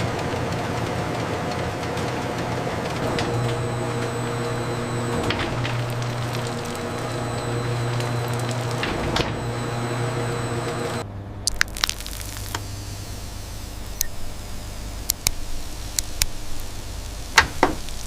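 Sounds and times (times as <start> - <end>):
low drone: 0.0 - 11.1
factory machinery hum: 0.0 - 18.0
faint clicks: 15.0 - 16.7.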